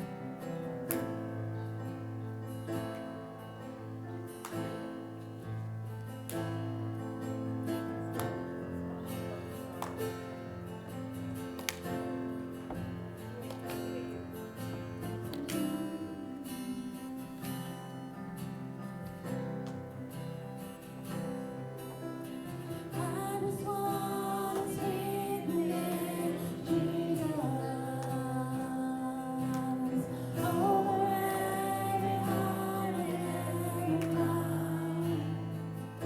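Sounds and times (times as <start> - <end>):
acoustic guitar strumming: 0.0 - 36.0
person singing: 15.2 - 17.6, 22.7 - 36.0.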